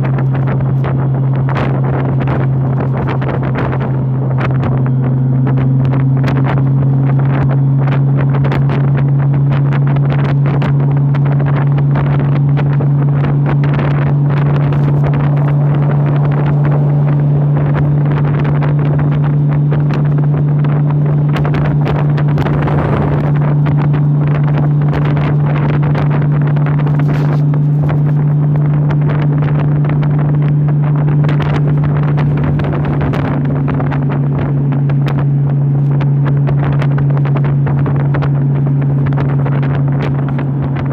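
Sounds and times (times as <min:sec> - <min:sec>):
motorcycle engine cruising: 0:00.0 - 0:40.9
wind on microphone: 0:00.0 - 0:40.9.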